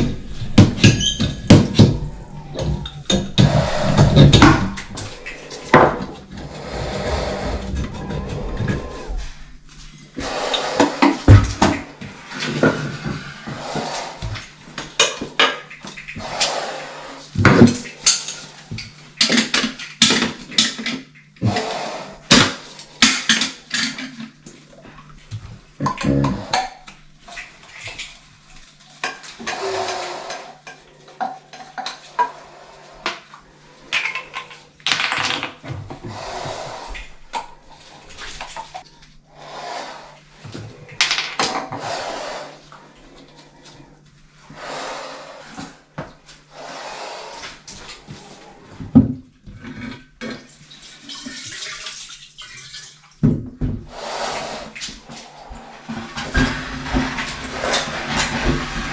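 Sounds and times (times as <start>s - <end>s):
hard objects clattering: 0.0s - 9.3s
steady low hum: 0.0s - 12.3s.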